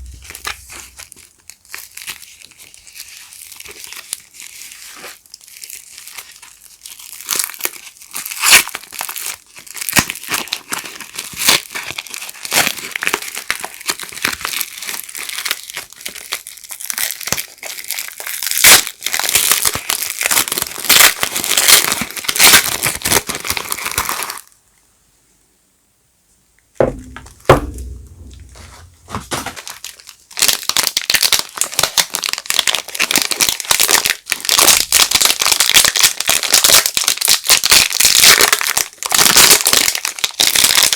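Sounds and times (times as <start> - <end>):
low handling thumps: 0.0 - 1.0, 26.8 - 29.5
wrappers crinkling and tearing: 0.0 - 24.6, 29.0 - 40.9.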